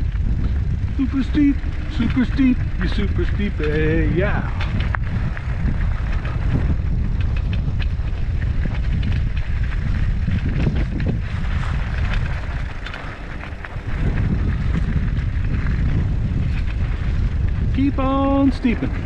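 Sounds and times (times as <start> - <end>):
bike clicks and rattles: 0.0 - 19.0
bike tyre noise: 0.0 - 19.0
wind on microphone: 0.0 - 19.0.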